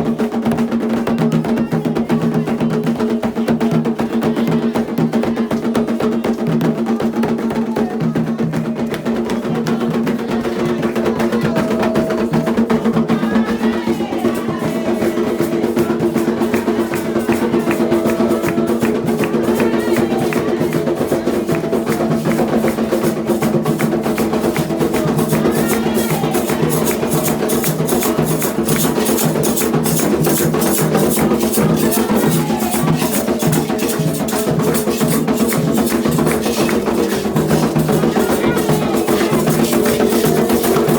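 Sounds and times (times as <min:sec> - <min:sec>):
hand drums with clicking strokes: 0:14.0 - 0:40.9.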